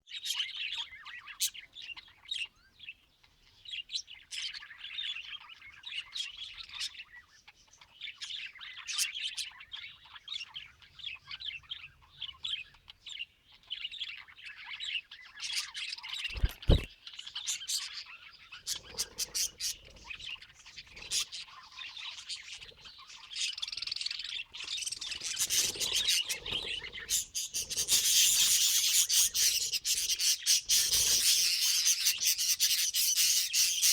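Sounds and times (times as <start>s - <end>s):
budgerigars chirping: 16.3s - 16.9s, 18.6s - 33.9s
scratchy rustle: 16.3s - 16.9s.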